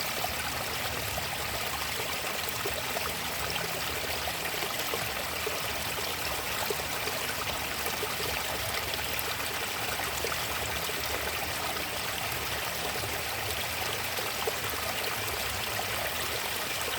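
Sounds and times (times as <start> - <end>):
stream water flowing: 0.0 - 16.9.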